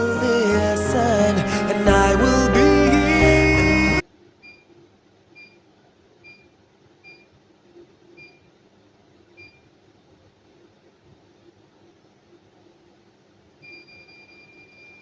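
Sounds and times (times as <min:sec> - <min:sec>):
high-pitched control panel beeps: 0:13.6 - 0:15.0.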